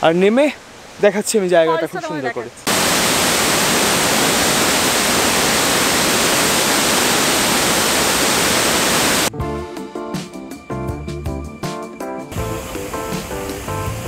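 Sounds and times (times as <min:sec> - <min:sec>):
waterfall roaring: 0:00.7 - 0:09.3
background music: 0:09.3 - 0:14.0.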